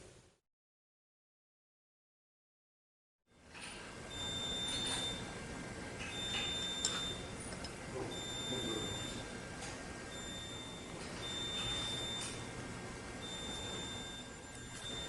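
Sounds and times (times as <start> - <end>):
electronic beeper beeping: 8.1 - 9.2, 10.1 - 12.4, 13.2 - 15.0.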